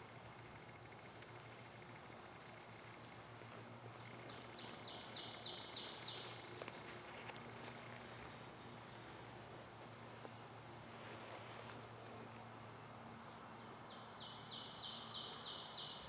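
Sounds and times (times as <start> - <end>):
faint outdoor hiss: 0.0 - 16.0
steady low hum: 0.0 - 16.0.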